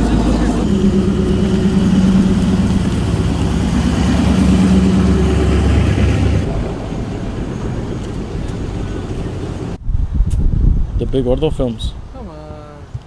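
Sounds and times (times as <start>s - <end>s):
truck engine running: 0.0s - 9.8s.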